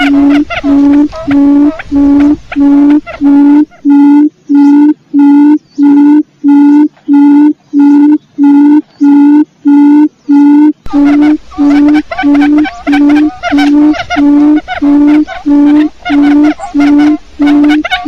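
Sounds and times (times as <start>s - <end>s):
quail lure call hooting: 0.0s - 18.0s
faint background hiss: 10.9s - 18.0s.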